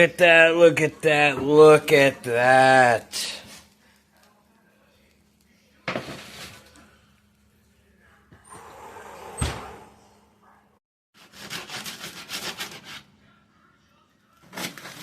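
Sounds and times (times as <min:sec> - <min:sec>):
knife sawing through crispy bread: 0:11.2 - 0:13.1, 0:14.4 - 0:15.0.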